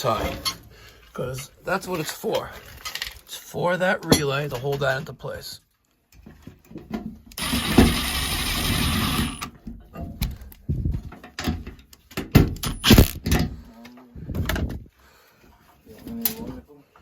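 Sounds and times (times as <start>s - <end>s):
mechanical buzz: 7.4s - 9.5s.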